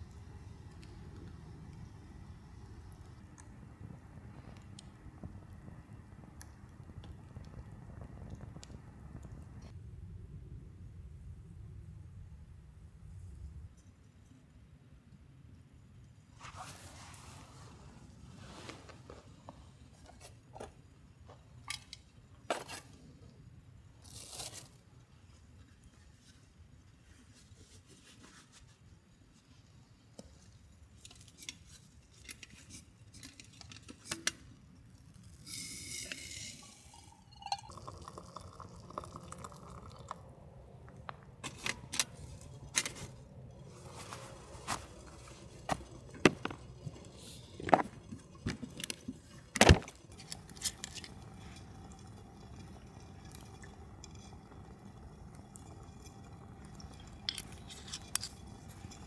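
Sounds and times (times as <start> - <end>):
water pouring into metal pot: 35.5 - 40.3, 42.2 - 59.0.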